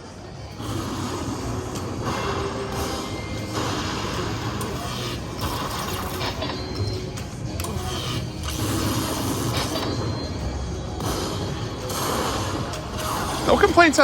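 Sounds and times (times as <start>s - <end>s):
busy casino din: 0.0s - 14.0s.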